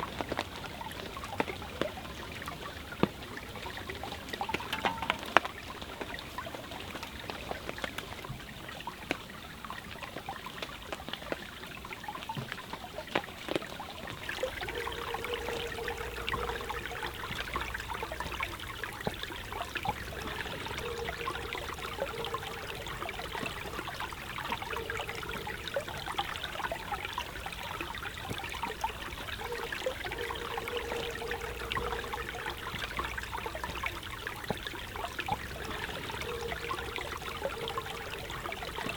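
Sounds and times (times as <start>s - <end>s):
stream flowing: 0.0s - 38.9s
campfire crackling: 2.9s - 6.2s, 14.2s - 38.9s
falling rain: 14.0s - 38.9s
steady mid-pitched tone: 14.3s - 38.9s.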